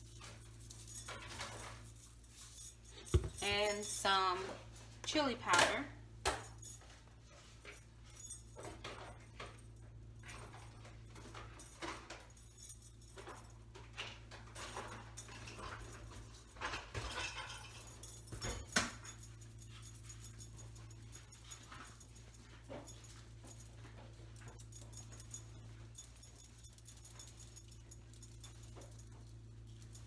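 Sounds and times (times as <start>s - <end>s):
steady low hum: 14.4s - 30.0s.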